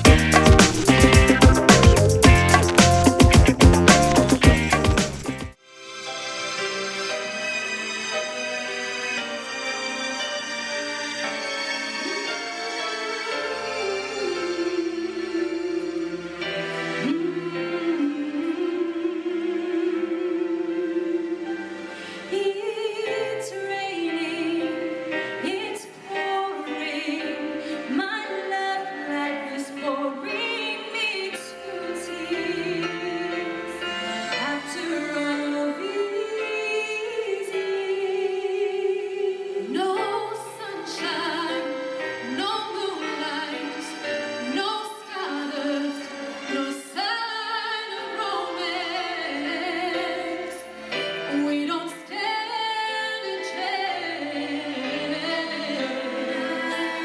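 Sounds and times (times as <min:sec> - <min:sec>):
instrumental backing with beat: 0:00.0 - 0:05.6
choir singing: 0:54.0 - 0:57.0.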